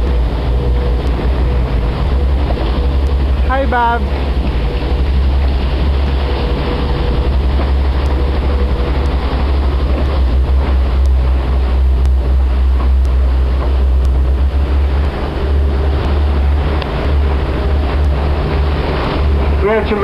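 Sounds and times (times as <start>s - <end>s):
boat engine rumble: 0.0s - 20.0s
wind and water noise: 0.0s - 20.0s.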